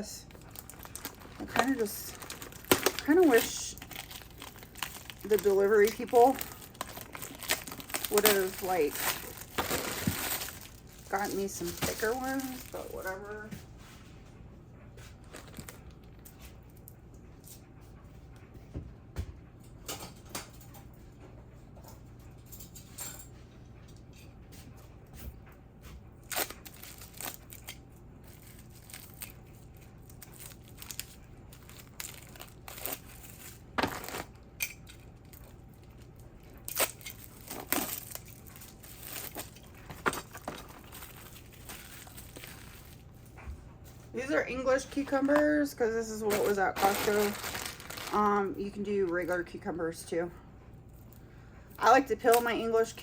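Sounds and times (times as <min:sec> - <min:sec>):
steady low hum: 0:00.0 - 0:53.0
packaging crinkling: 0:00.3 - 0:13.3, 0:15.2 - 0:16.3, 0:26.2 - 0:43.3, 0:44.6 - 0:48.8.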